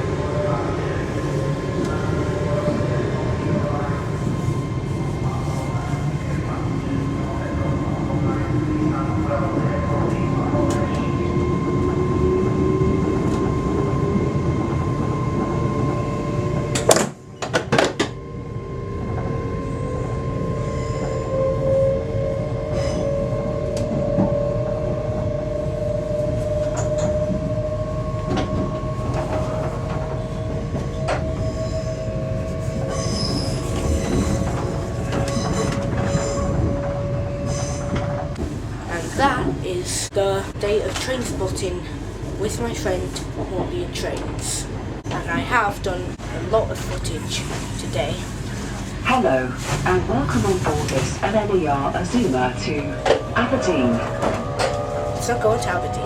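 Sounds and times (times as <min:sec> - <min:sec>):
wheels rumbling on rail: 0:00.0 - 0:56.0.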